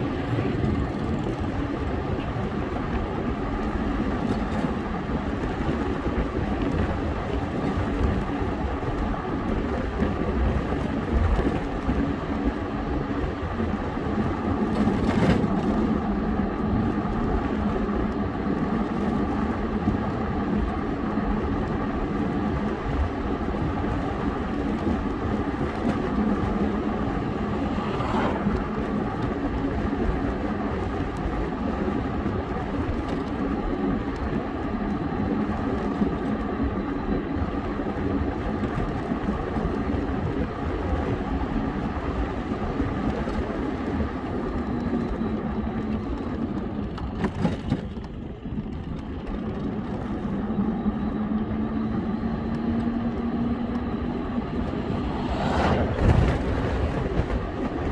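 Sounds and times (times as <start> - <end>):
road noise: 0.0 - 34.7, 49.2 - 57.9
engine hum: 0.0 - 57.9
wind buffeting microphone: 0.0 - 57.9
loud swish: 27.3 - 29.0, 54.7 - 56.9.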